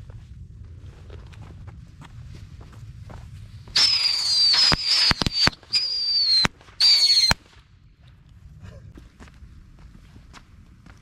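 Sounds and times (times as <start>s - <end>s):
whistling fireworks: 3.6s - 7.6s
firework cracks: 3.7s - 7.6s.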